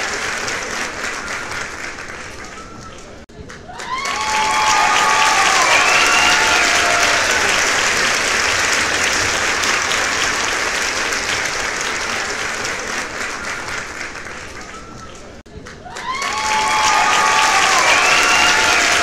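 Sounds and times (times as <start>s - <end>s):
crowd applause: 0.0s - 19.0s.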